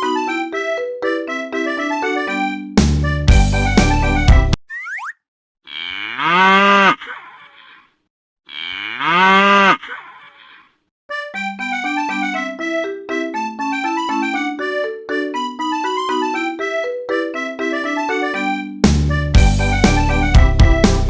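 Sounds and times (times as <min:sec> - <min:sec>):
bouncy keyboard music: 0:00.0 - 0:04.6, 0:11.1 - 0:21.0
cartoon bull mooing: 0:05.7 - 0:07.8, 0:08.5 - 0:10.6.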